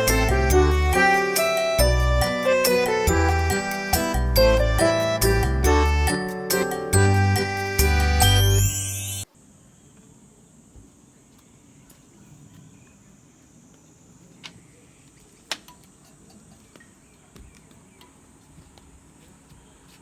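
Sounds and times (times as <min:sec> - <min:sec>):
insects chirring: 0:09.0 - 0:18.4.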